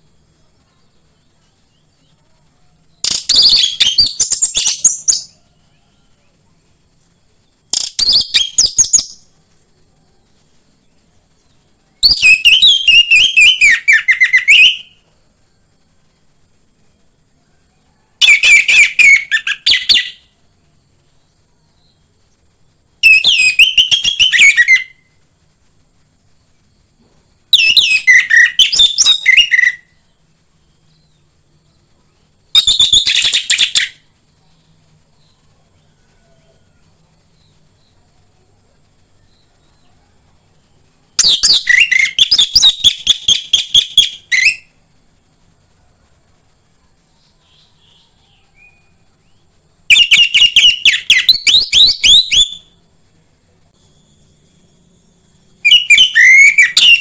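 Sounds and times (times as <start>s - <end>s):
faint high hiss: 0.0s - 57.0s
thrush singing chirping phrases: 12.0s - 15.1s, 18.2s - 20.4s, 23.0s - 25.1s, 27.5s - 30.0s, 47.2s - 52.8s, 55.6s - 57.0s.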